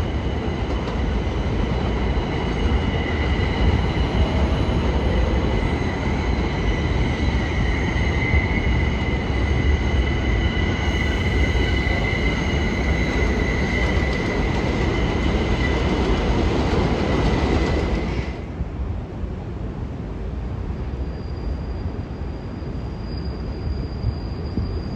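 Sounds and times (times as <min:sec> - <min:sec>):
subway train rumble: 0:00.0 - 0:24.9
high-pitched wheel squeal: 0:02.8 - 0:16.0.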